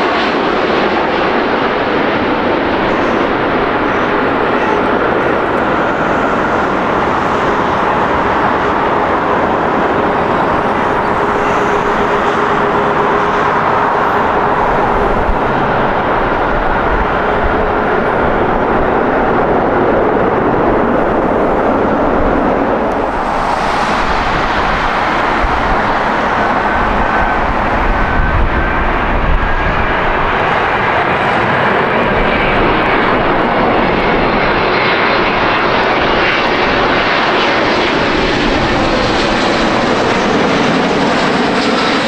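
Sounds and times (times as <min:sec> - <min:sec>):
jet engines roaring: 0:00.0 - 0:42.0.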